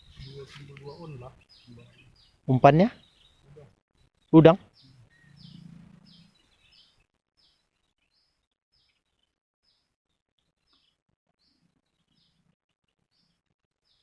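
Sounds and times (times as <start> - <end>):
faint low murmur: 0.0 - 2.1
faint bird chirping: 0.0 - 14.0.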